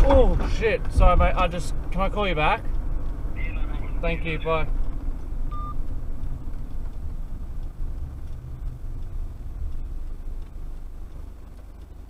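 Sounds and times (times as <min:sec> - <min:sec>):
engine and road rumble in cabin: 0:00.0 - 0:12.0
short electronic beep: 0:05.5 - 0:05.8.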